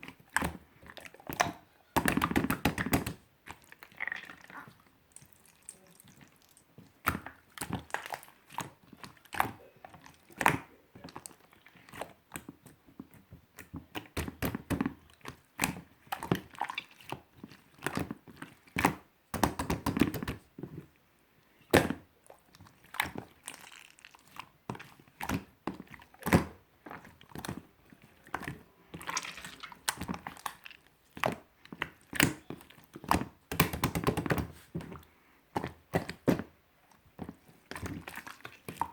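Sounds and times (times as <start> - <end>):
slime squished by hand: 21.7 - 38.9.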